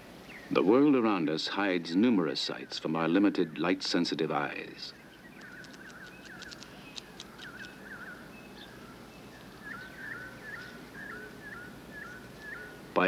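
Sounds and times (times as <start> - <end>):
small bird chirping: 4.8 - 13.0
faint sharp high ticks: 5.4 - 7.8.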